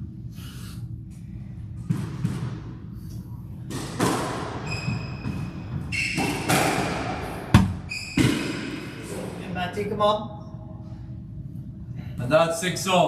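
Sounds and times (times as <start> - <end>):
squash ball thuds: 1.7 - 3.0, 3.6 - 9.0
shoes squeaking on court: 4.4 - 6.8, 7.7 - 8.6.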